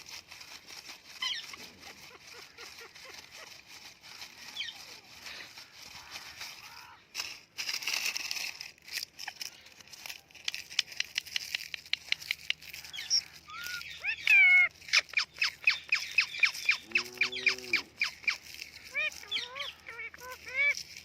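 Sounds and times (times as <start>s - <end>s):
parrot chattering: 12.8s - 20.9s.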